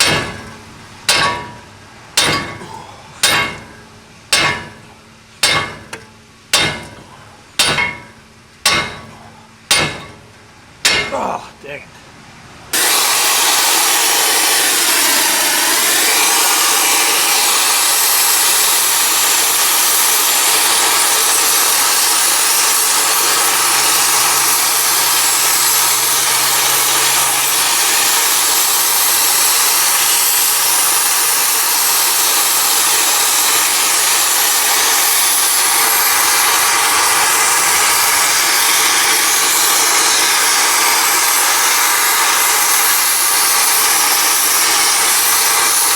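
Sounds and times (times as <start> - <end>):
gas torch hissing: 12.7 - 45.9.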